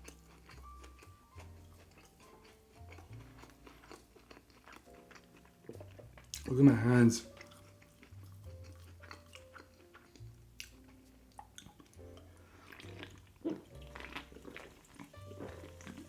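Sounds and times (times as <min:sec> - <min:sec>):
chewing: 0:00.0 - 0:16.0
soft background music: 0:00.0 - 0:16.0
wet smacking of eating by hand: 0:07.4 - 0:12.0, 0:12.7 - 0:16.0.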